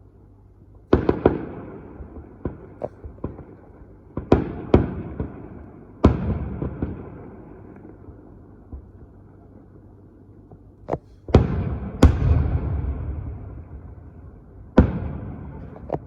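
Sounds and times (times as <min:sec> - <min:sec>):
fireworks bangs: 0:11.4 - 0:16.0
rumbling echo: 0:11.4 - 0:16.0.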